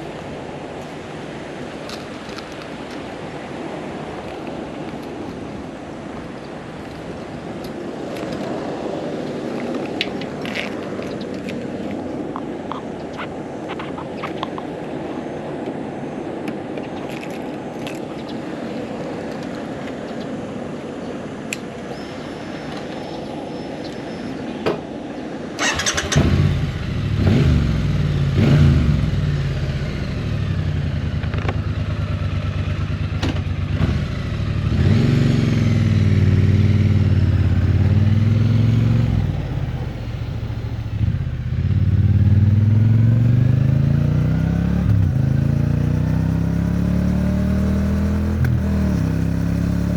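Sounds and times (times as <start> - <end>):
motorcycle engine running: 25.6 - 49.9.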